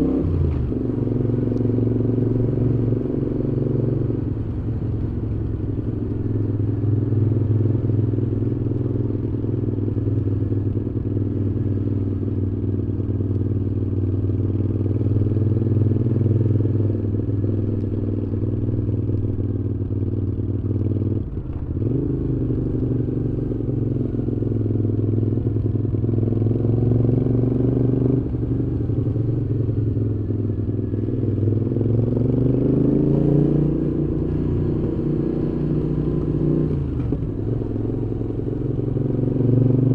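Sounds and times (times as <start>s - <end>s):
motorcycle engine revving: 0.0s - 4.9s, 20.7s - 39.9s.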